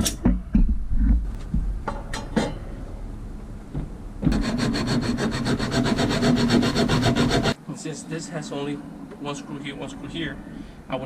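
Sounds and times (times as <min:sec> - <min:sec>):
tools knocking and clinking: 0:01.8 - 0:02.7
saw cutting: 0:04.3 - 0:07.6.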